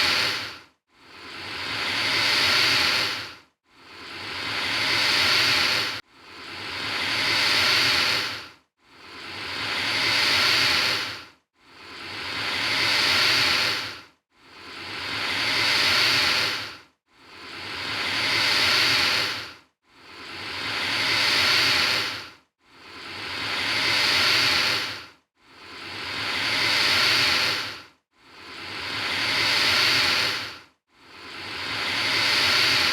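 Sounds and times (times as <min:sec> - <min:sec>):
alligator hissing: 0:00.0 - 0:00.5, 0:01.2 - 0:03.3, 0:04.0 - 0:06.0, 0:06.8 - 0:08.4, 0:09.7 - 0:11.1, 0:11.9 - 0:13.9, 0:15.0 - 0:16.7, 0:17.4 - 0:19.4, 0:20.2 - 0:22.2, 0:23.0 - 0:25.0, 0:25.7 - 0:27.8, 0:28.4 - 0:30.5, 0:31.3 - 0:32.9.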